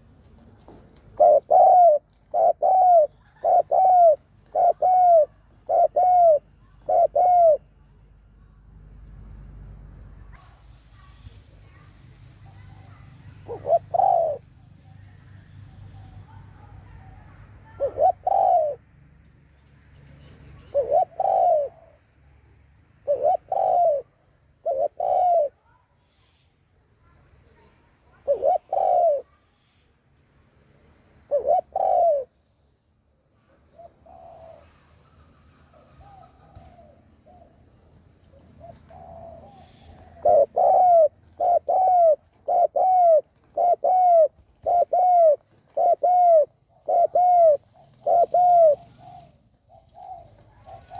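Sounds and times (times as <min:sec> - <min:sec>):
dove cooing: 0:01.1 - 0:07.8, 0:12.9 - 0:14.5, 0:17.6 - 0:18.8, 0:20.6 - 0:22.0, 0:23.0 - 0:25.6, 0:28.1 - 0:29.3, 0:31.3 - 0:32.3, 0:33.8 - 0:37.7, 0:38.4 - 0:50.9.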